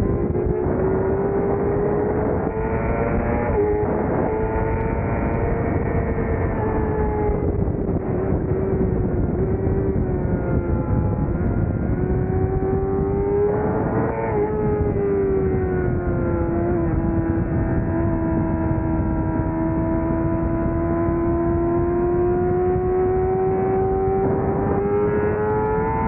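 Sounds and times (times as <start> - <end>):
racing motorcycle engine: 0.0 - 26.0
wind rushing: 0.0 - 26.0.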